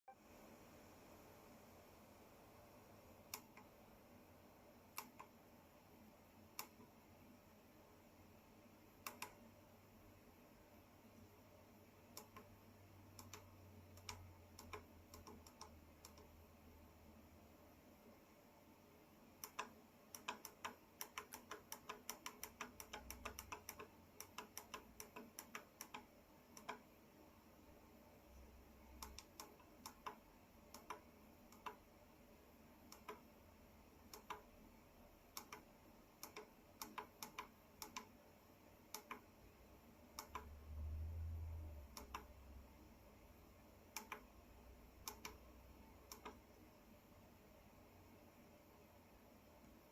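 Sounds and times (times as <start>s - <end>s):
quiet sharp clicks: 3.2s - 3.8s, 4.9s - 5.4s, 6.5s - 6.9s, 9.0s - 9.5s, 12.1s - 12.5s, 13.1s - 16.4s, 19.4s - 26.9s, 28.9s - 31.9s, 32.9s - 33.3s, 34.0s - 34.5s, 35.3s - 38.1s, 38.9s - 39.3s, 40.2s - 41.0s, 41.8s - 42.4s, 43.9s - 44.4s, 45.0s - 46.6s.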